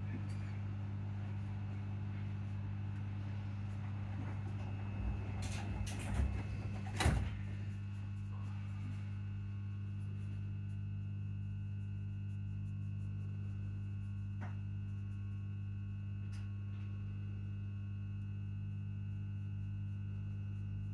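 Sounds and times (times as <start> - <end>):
low electric hum of train: 0.0 - 9.6.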